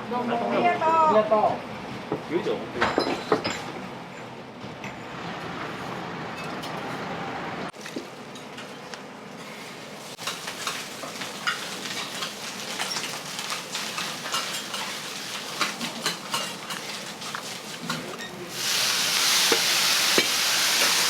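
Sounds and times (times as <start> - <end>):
food sizzling on a griddle: 9.4 - 21.0.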